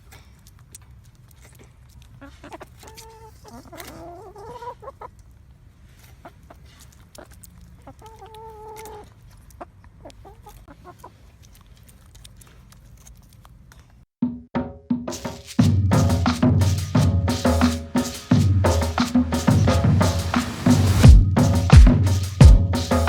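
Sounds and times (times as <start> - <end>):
chickens clucking and calling: 2.2 - 5.2.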